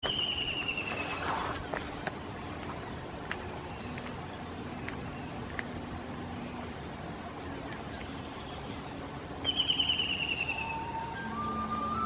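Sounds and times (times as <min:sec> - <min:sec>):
insect drone: 0:00.0 - 0:12.0
falling whistle: 0:09.6 - 0:12.0.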